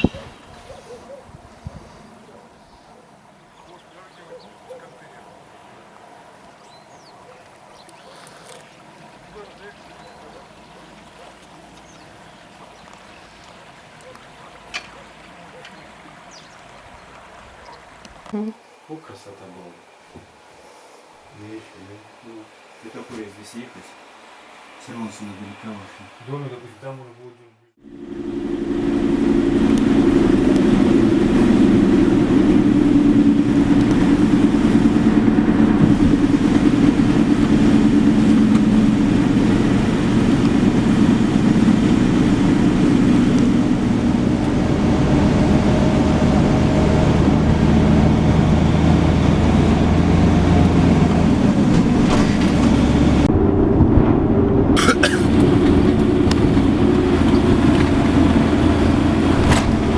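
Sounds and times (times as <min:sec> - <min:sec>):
road noise: 0:00.0 - 0:59.9
vehicle engine hum: 0:27.8 - 0:59.9.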